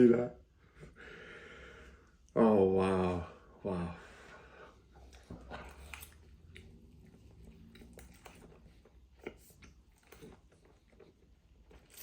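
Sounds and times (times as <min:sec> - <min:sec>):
faint chewing noodles: 0:04.9 - 0:12.0.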